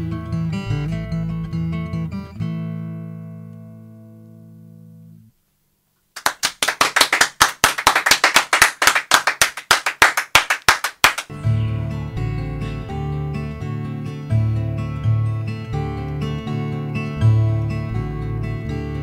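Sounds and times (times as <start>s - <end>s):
audience clapping: 6.2s - 11.3s
acoustic guitar strumming: 11.3s - 19.0s.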